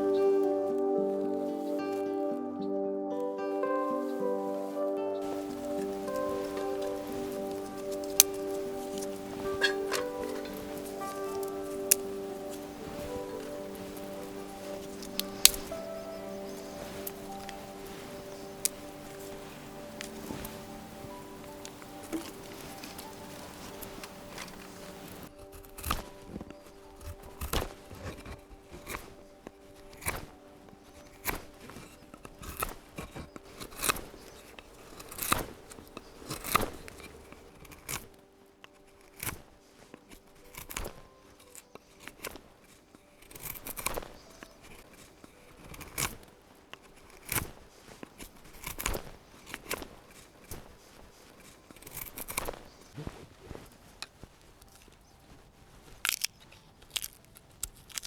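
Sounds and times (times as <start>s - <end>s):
blade cutting strokes: 5.2s - 46.3s.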